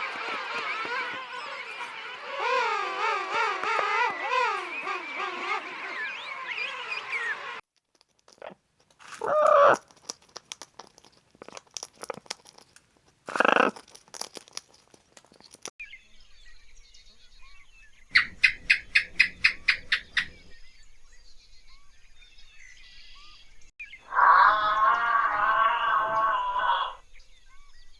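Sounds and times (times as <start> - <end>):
chickens clucking: 18.1 - 20.6.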